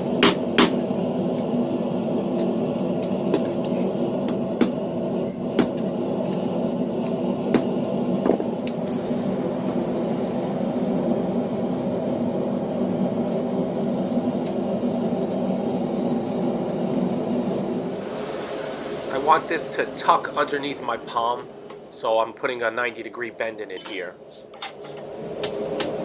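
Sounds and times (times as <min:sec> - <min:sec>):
forge roaring: 0:00.0 - 0:22.1.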